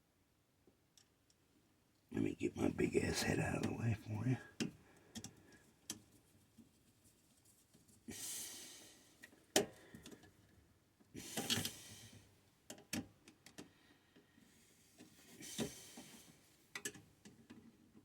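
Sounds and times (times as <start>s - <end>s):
close breaths: 2.6s - 5.8s, 8.1s - 10.4s, 11.2s - 12.4s, 13.6s - 16.6s.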